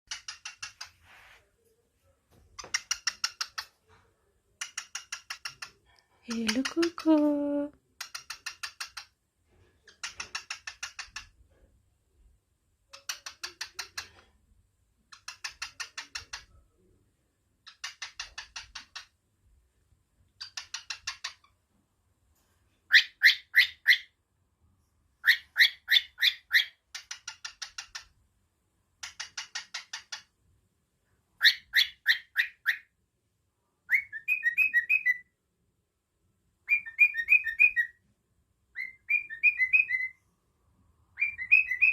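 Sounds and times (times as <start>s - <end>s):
cockatiel chirping: 0.1s - 1.3s, 2.6s - 3.8s, 4.6s - 6.7s, 8.0s - 9.2s, 9.8s - 11.4s, 12.9s - 14.3s, 15.1s - 16.6s, 17.6s - 19.2s, 20.3s - 21.6s, 22.9s - 24.2s, 25.2s - 28.1s, 29.0s - 30.3s, 31.4s - 33.0s, 33.8s - 35.3s, 36.6s - 38.0s, 38.7s - 40.2s, 41.1s - 41.9s.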